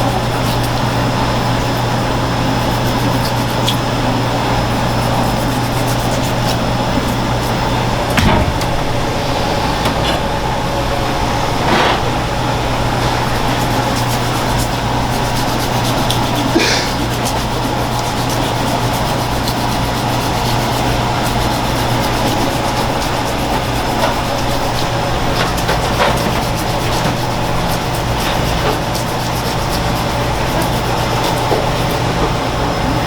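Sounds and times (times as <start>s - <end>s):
mechanical drone: 7.6s - 12.8s
faint short knocks: 8.1s - 9.0s.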